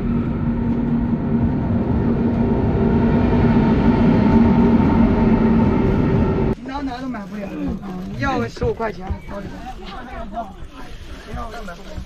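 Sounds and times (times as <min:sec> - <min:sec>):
train rumbling: 0:00.0 - 0:06.6.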